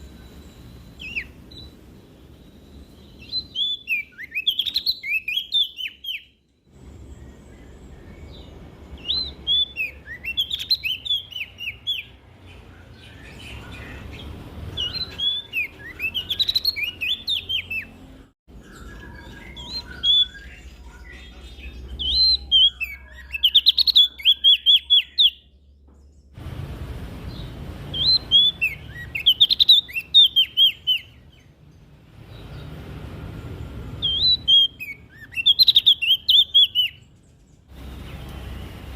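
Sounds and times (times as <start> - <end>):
warbler singing: 0.0 - 38.9.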